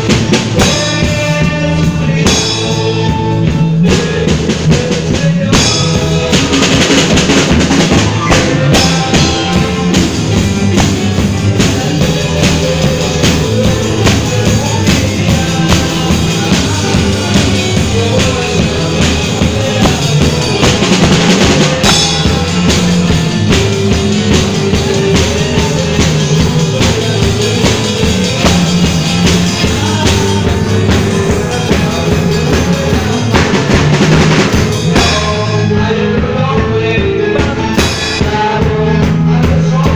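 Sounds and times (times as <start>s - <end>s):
band playing instrumental: 0.0s - 39.9s
drum kit steady beat: 0.0s - 39.9s.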